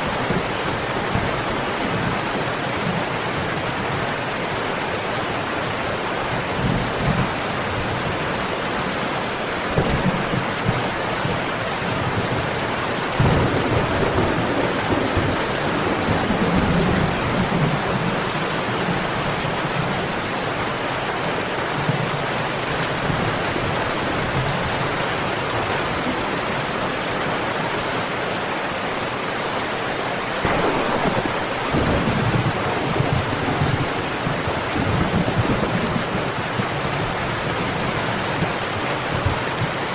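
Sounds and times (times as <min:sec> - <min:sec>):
heavy rain: 0:00.0 - 0:39.9
rolling thunder: 0:09.7 - 0:19.2, 0:30.4 - 0:38.5.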